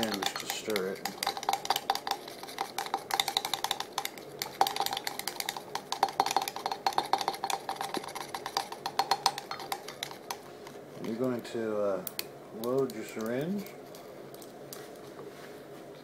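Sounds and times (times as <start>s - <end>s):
syringe clinking against container: 0.0s - 11.2s.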